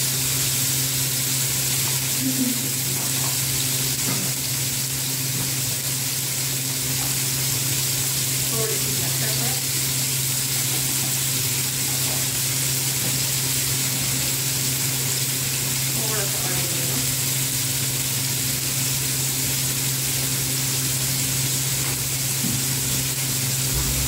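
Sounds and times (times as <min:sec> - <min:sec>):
chicken sizzling in oil: 0:00.0 - 0:24.0
low hum: 0:23.7 - 0:24.0.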